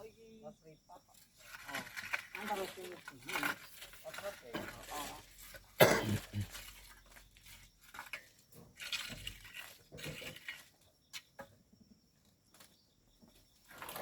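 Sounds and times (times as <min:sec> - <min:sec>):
sand and stones crunching: 0:01.3 - 0:11.4.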